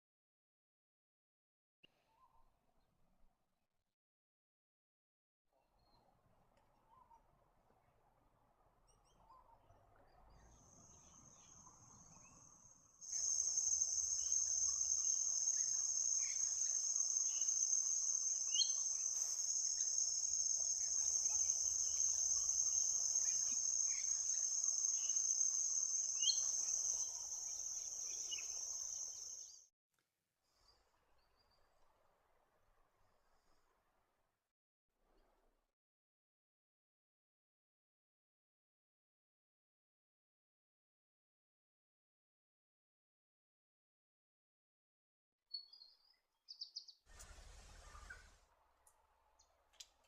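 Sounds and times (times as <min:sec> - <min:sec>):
high-pitched insect chorus: 0:13.0 - 0:29.6.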